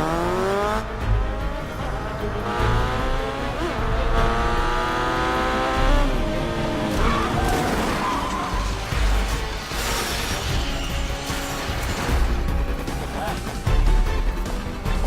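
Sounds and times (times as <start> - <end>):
vehicle engine revving hard: 0.0 - 8.0.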